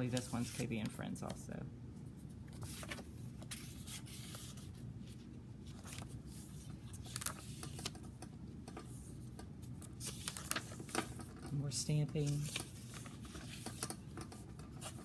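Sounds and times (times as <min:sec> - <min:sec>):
low room hum: 0:00.0 - 0:15.0
paper rustling and tapping: 0:05.7 - 0:15.0.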